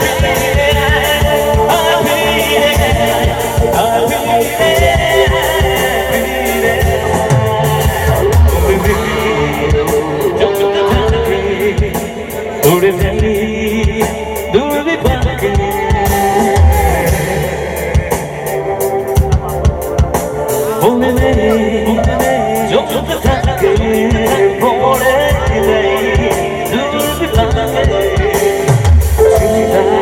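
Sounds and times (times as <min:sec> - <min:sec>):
gliding melody line: 0:21.3 - 0:24.2, 0:29.2 - 0:30.0.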